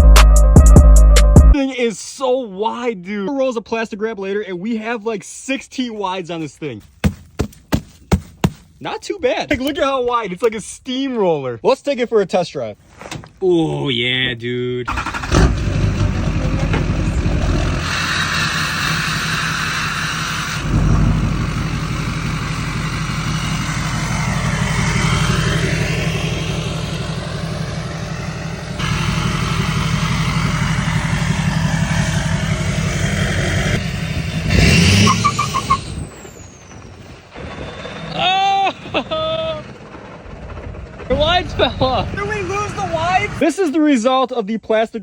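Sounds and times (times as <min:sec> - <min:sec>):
pickup truck engine running: 0:14.9 - 0:43.4
low pulsing from wheels: 0:16.0 - 0:37.7
loud noisy burst: 0:17.7 - 0:35.1.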